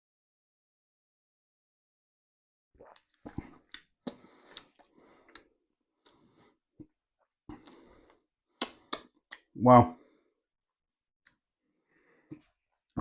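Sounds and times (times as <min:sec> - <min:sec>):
mouth clicks and lip smacks: 0:02.8 - 0:06.2, 0:08.5 - 0:09.5
person sipping and swallowing: 0:02.8 - 0:06.2.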